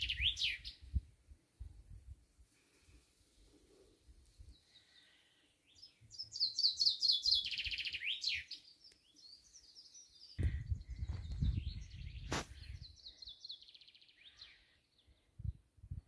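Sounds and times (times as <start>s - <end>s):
songbird singing: 0.0s - 1.1s, 4.3s - 15.4s.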